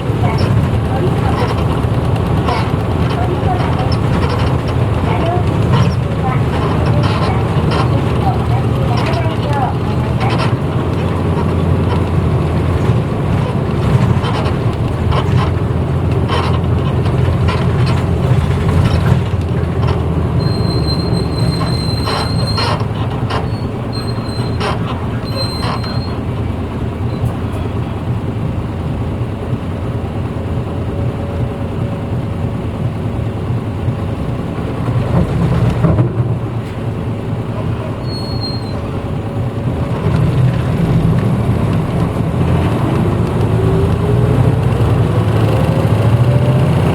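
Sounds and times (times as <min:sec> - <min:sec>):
body rattles and clicks: 0:00.0 - 0:28.0, 0:39.6 - 0:46.9
bus engine drone: 0:00.0 - 0:46.9
high squeaks: 0:00.2 - 0:26.3, 0:37.6 - 0:39.0.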